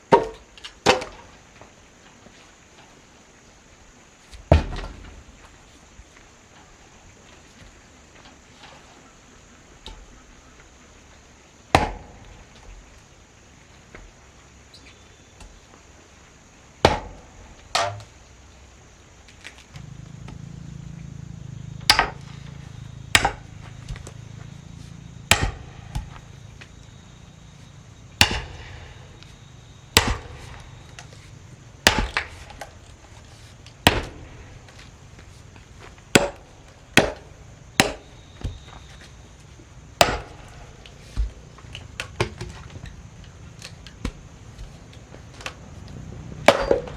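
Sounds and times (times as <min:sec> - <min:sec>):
low steady hum: 0:00.0 - 0:46.9
axe chopping wood: 0:00.1 - 0:01.2, 0:04.4 - 0:05.2, 0:11.7 - 0:12.4, 0:16.8 - 0:18.1, 0:21.8 - 0:24.5, 0:25.3 - 0:26.4, 0:28.2 - 0:29.3, 0:29.9 - 0:34.9, 0:35.8 - 0:39.1, 0:40.0 - 0:42.9, 0:43.5 - 0:45.6, 0:46.4 - 0:46.9.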